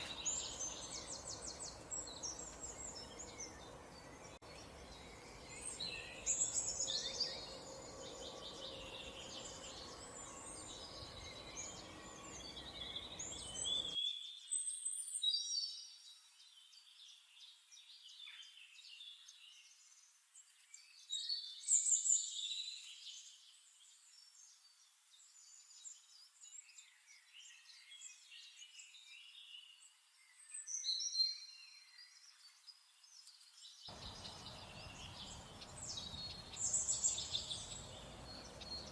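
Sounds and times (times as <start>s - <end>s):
birds chirping and singing: 0.0s - 15.7s, 33.1s - 38.9s.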